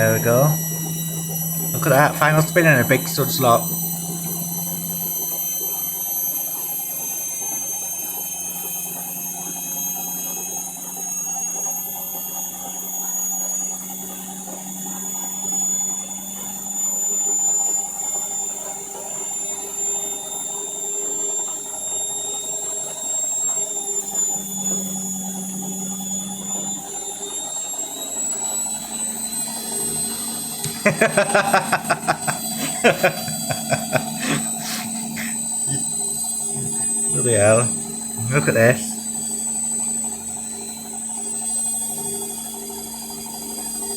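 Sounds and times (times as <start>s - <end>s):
low hum: 0.0s - 6.3s, 29.6s - 40.6s
washing machine motor whine: 0.0s - 43.9s.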